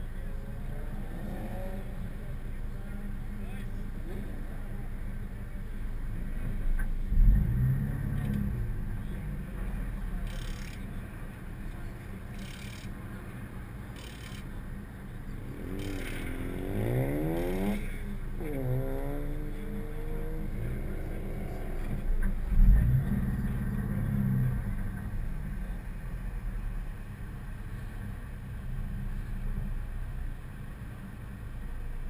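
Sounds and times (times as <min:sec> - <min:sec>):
car engine accelerating hard: 0:06.4 - 0:11.0, 0:15.3 - 0:29.8.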